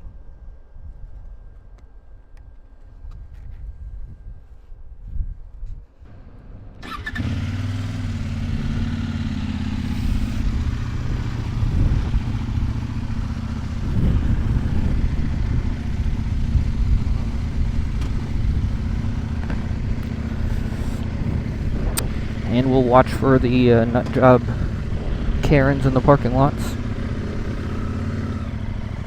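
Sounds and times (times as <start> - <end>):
motorcycle engine starting and running: 6.1 - 29.0.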